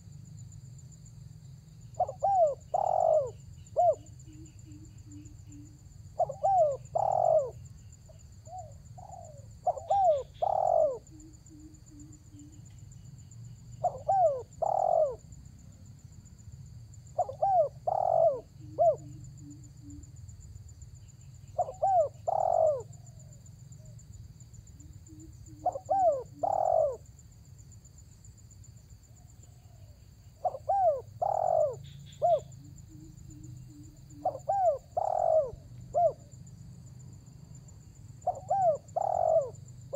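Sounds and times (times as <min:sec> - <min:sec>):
dove cooing: 0:01.9 - 0:07.8, 0:08.4 - 0:12.7, 0:13.8 - 0:15.3, 0:17.2 - 0:20.1, 0:21.5 - 0:23.4, 0:24.8 - 0:27.1, 0:30.4 - 0:36.4, 0:38.2 - 0:39.6.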